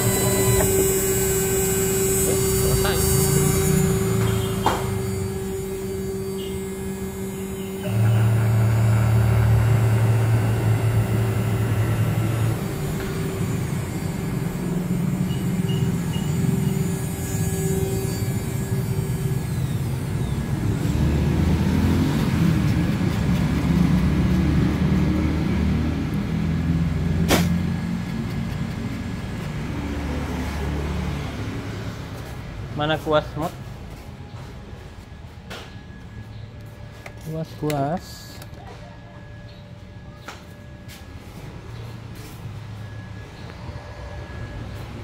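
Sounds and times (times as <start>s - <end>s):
router motor hum: 0.0s - 31.9s.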